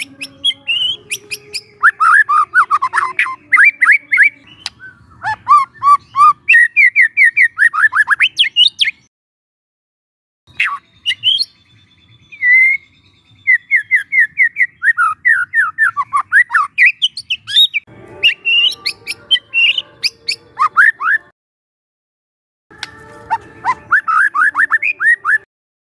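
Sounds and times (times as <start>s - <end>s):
buzzy bird chatter: 0.0s - 9.0s
bird whistling song: 0.0s - 9.1s, 10.5s - 21.3s, 22.8s - 25.5s.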